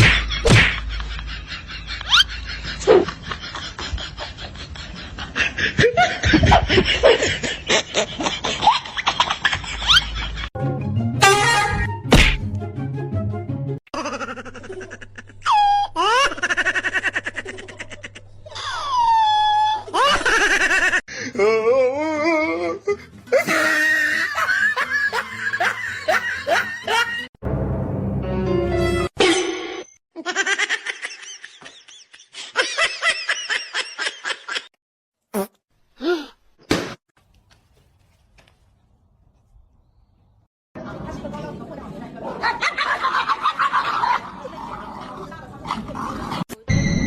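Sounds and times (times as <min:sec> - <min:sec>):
person laughing in bursts: 0:00.0 - 0:10.5, 0:13.9 - 0:18.3, 0:19.9 - 0:21.0, 0:23.3 - 0:27.3
music: 0:10.6 - 0:13.8, 0:21.9 - 0:29.2
person laughing: 0:13.9 - 0:21.6, 0:22.6 - 0:27.3.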